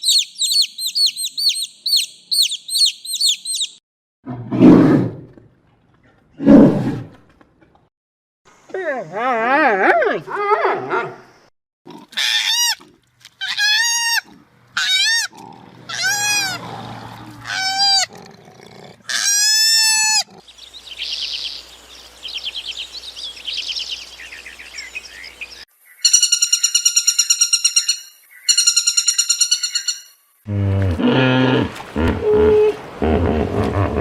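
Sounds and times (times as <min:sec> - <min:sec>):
long high pulsing calls: 0:00.0 - 0:03.8
rising and falling animal cries: 0:13.4 - 0:18.2, 0:19.1 - 0:20.5.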